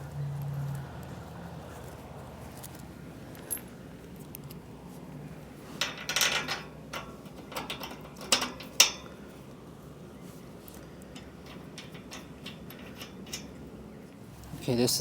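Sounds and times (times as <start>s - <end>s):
metal bolts and nuts clinking: 5.8s - 9.2s, 11.1s - 13.7s.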